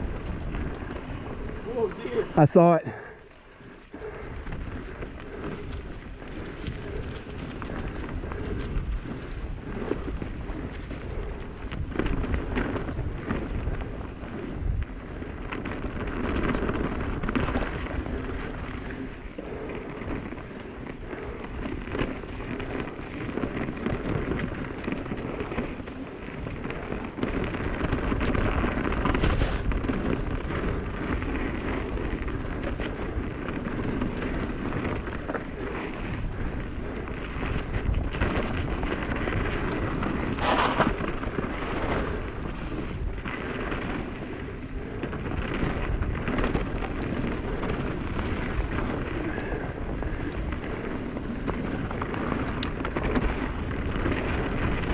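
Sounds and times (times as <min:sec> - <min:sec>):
bike tyres rumbling on dirt: 0:00.0 - 0:54.9
bike knocks and rattles: 0:21.5 - 0:44.3.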